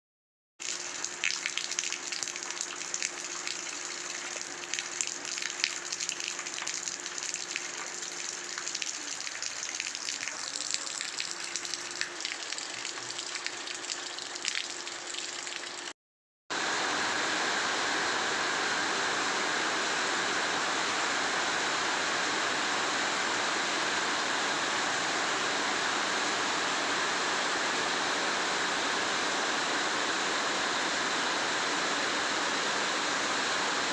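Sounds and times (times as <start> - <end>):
raindrops pattering: 0.6 - 15.9.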